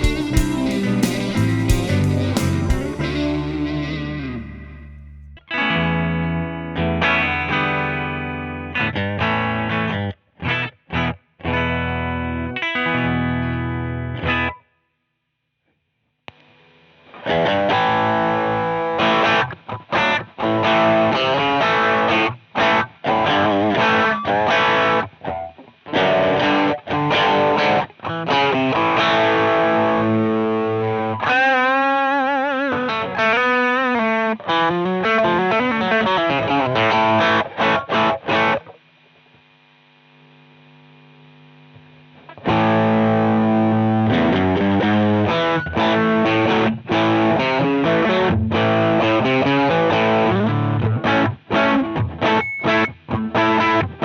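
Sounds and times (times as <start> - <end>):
faint steady hum: 0.0 - 5.4, 32.7 - 54.0
distorted electric guitar riffs: 0.0 - 14.6, 16.3 - 54.0.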